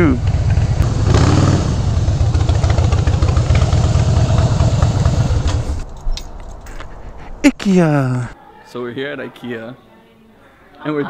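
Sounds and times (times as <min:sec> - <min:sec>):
motorcycle engine idling: 0:00.2 - 0:05.6.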